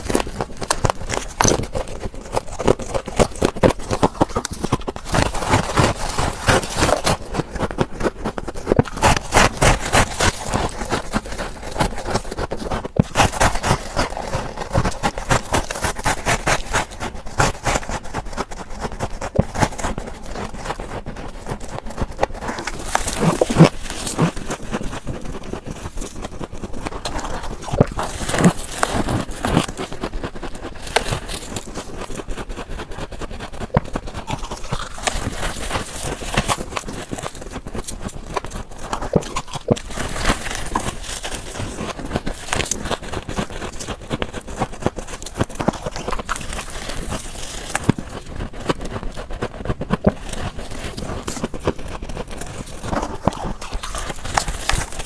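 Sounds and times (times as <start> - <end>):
ice crunching as chewed: 0.0 - 55.0.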